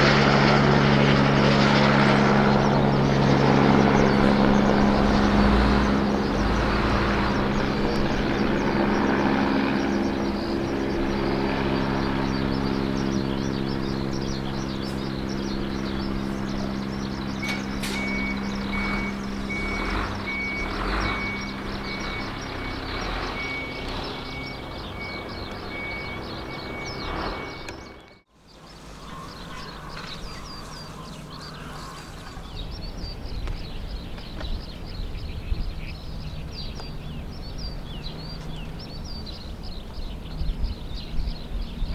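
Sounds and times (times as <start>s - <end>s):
birds chirping: 0.0s - 41.9s
helicopter climbing away: 0.0s - 41.9s
high electronic beeps: 17.4s - 28.2s.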